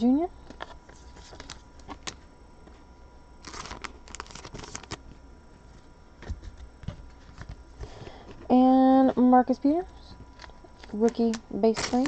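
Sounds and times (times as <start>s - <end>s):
trading cards rustling and sliding: 0.6s - 2.8s, 3.4s - 5.1s, 10.3s - 12.0s.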